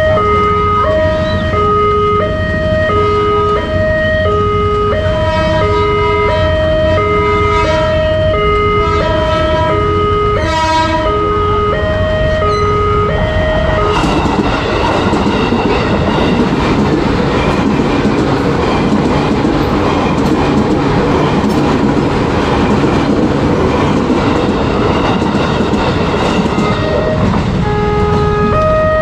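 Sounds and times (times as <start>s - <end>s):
two-tone crossing warning alarm: 0.0s - 29.0s
train wheels clattering on rails: 13.8s - 28.7s.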